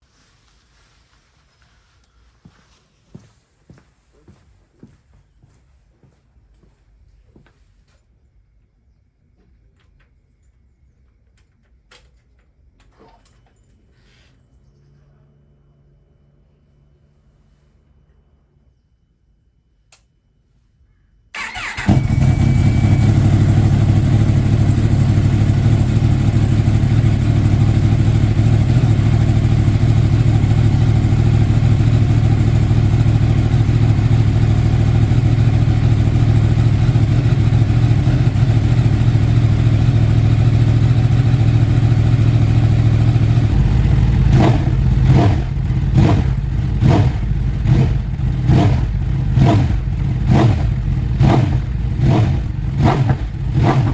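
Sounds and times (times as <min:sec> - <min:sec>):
engine revving: 0:21.4 - 0:53.9
motorcycle engine idling: 0:21.4 - 0:53.9.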